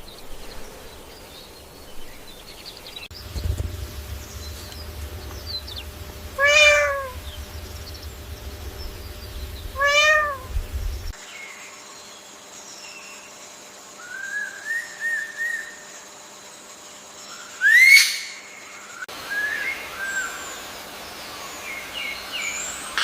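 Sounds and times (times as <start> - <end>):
faint high chirps: 3.2 - 11.1
cat meowing: 6.4 - 7.2, 9.7 - 10.6.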